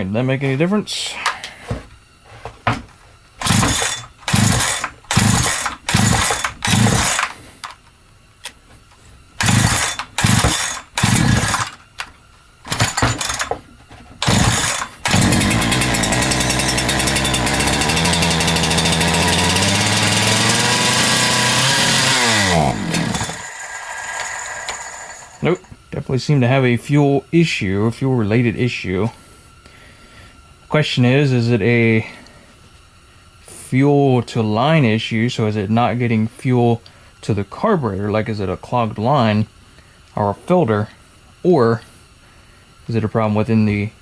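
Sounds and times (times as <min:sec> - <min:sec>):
chainsaw engine running: 0:03.4 - 0:07.5, 0:09.4 - 0:11.8, 0:12.7 - 0:13.5, 0:14.2 - 0:25.7
starter cord pulls: 0:03.4 - 0:07.8, 0:09.4 - 0:12.1, 0:12.7 - 0:13.6, 0:14.2 - 0:25.7.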